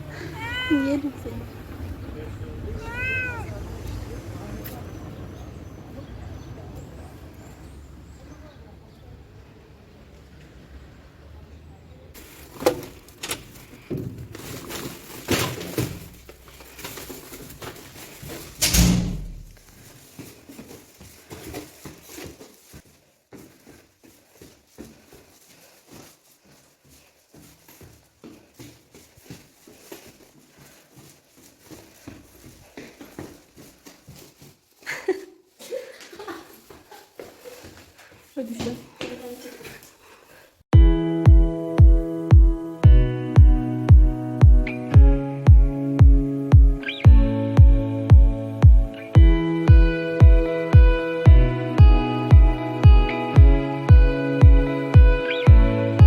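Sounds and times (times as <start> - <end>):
cat meowing: 0.2 - 1.0, 2.6 - 3.7
soft knocks and rustles: 12.2 - 18.6.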